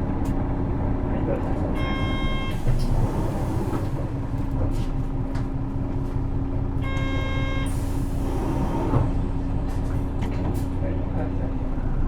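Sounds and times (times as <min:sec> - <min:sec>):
bus diesel engine running: 0:00.0 - 0:12.0
short electronic beep: 0:01.8 - 0:02.6, 0:06.8 - 0:07.7.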